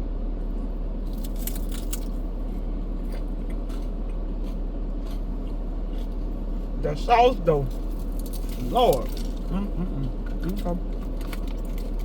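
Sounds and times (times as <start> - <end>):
person chewing crunchy food: 1.3 - 6.7.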